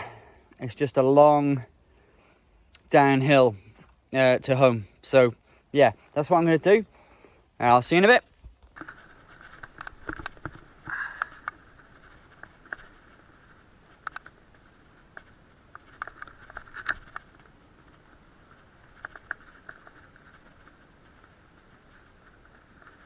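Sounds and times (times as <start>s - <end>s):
faint clicks and taps: 8.5s - 23.0s.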